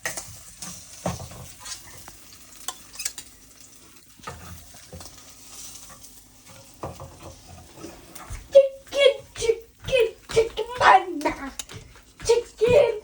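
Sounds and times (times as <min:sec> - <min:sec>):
egg sizzling in a frying pan: 0:00.0 - 0:10.3.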